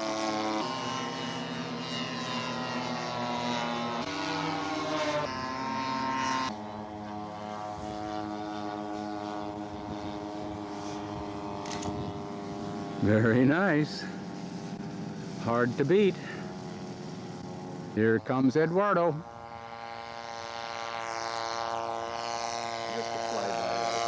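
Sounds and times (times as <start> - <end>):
model airplane engine: 0.0 - 24.0.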